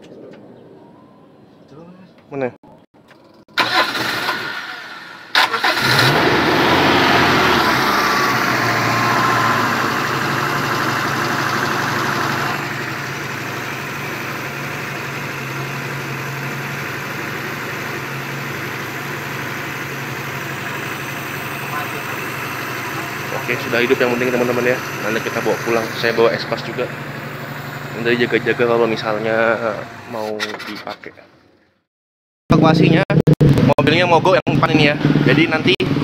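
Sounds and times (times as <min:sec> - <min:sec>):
van engine starting and idling: 0:03.5 - 0:30.7.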